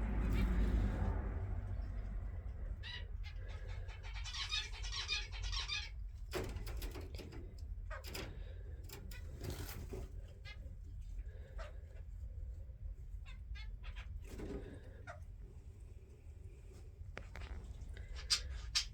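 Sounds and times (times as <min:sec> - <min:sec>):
small birds chirping: 0:01.7 - 0:12.0, 0:17.4 - 0:18.9.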